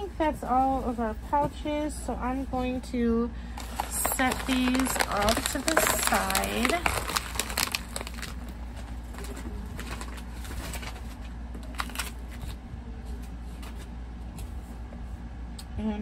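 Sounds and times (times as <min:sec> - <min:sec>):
clicks and rustles of handled items: 0:03.6 - 0:12.6.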